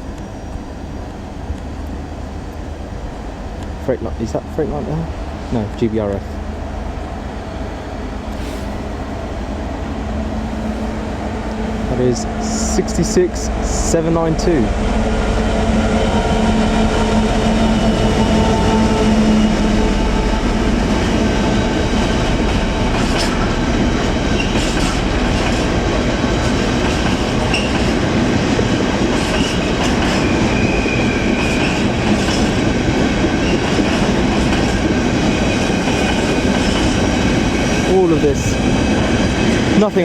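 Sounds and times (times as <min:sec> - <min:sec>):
locomotive engine hum: 0:00.0 - 0:40.0
train wheel clatter: 0:15.6 - 0:40.0.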